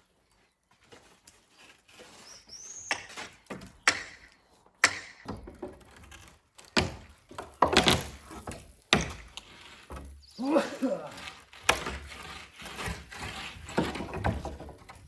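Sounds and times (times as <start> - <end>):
sharp knocks on wood: 4.8 - 5.7.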